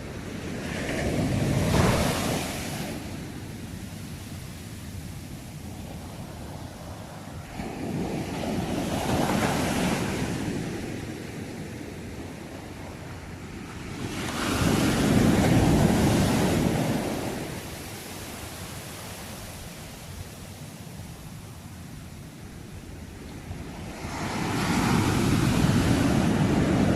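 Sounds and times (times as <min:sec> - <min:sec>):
sea waves breaking: 0:00.7 - 0:03.4, 0:13.6 - 0:21.0.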